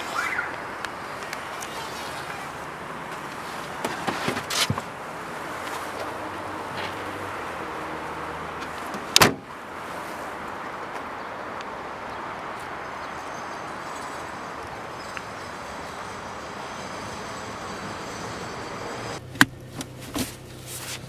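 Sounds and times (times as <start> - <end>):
car door clicks and knocks: 8.9 - 9.5
car door slamming: 8.9 - 9.6.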